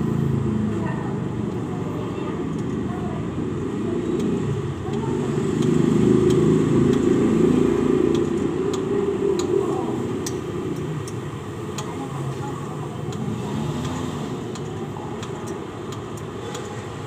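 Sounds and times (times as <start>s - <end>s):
vehicle engine passing: 3.3s - 15.2s.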